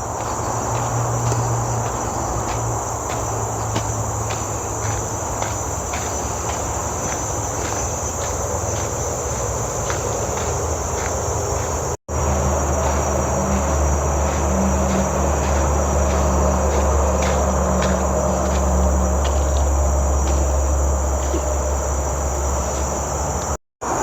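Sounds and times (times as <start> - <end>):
insects droning: 0.0 - 24.0
low hum: 9.8 - 23.6.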